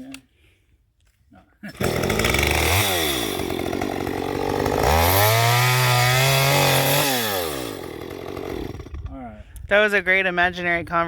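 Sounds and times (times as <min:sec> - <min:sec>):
chainsaw engine revving: 0:01.7 - 0:09.0.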